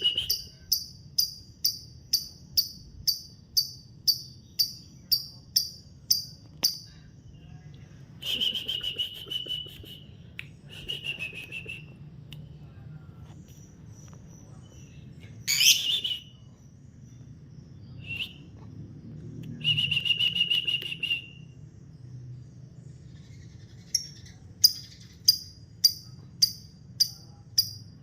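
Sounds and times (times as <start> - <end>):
lovebird screeching and chirping: 15.5 - 16.2.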